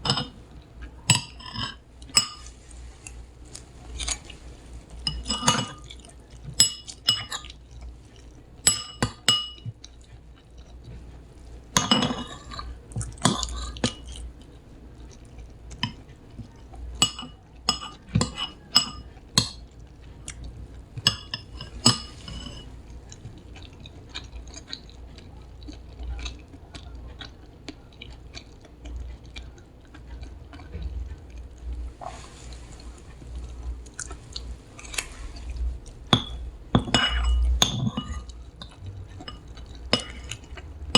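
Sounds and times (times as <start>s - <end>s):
dishes and glassware clinking: 0.0s - 0.4s, 1.1s - 2.6s, 5.0s - 5.9s, 6.6s - 7.5s, 8.6s - 9.8s, 11.8s - 14.1s, 17.0s - 19.6s, 21.0s - 22.7s, 36.0s - 40.4s.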